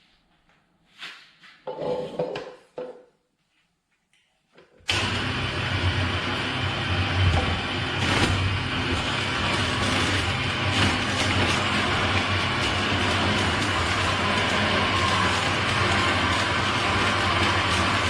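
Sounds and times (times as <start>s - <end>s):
juice extractor motor whirring: 4.9s - 18.0s.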